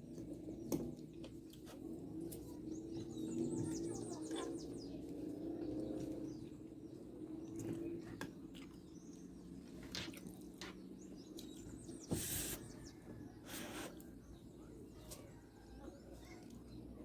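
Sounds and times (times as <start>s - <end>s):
chewing with small clicks: 0.0s - 6.5s, 7.3s - 11.8s, 15.7s - 16.9s
short hissy bursts: 12.0s - 12.8s, 13.5s - 14.0s.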